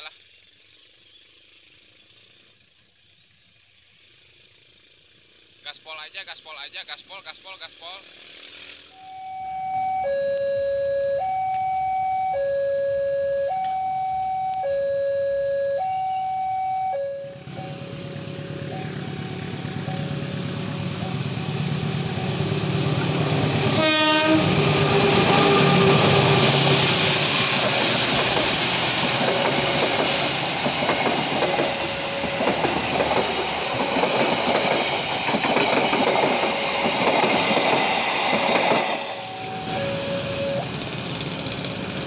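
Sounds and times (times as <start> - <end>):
two-tone crossing alarm: 8.9 - 26.5, 31.4 - 34.1, 38.7 - 40.8
train horn: 9.0 - 19.5, 21.8 - 26.6, 39.1 - 40.8
train wheels on rails: 17.3 - 42.0.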